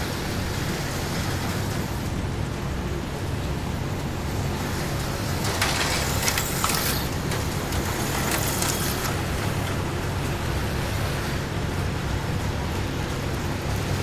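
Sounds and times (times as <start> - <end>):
low motor hum: 0.0 - 14.0
slot cars rushing past: 2.9 - 9.5.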